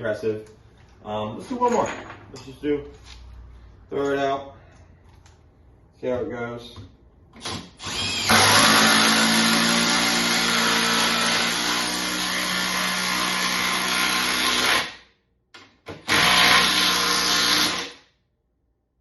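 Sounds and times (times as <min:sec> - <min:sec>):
impact driver driving into wood: 0:15.8 - 0:18.0.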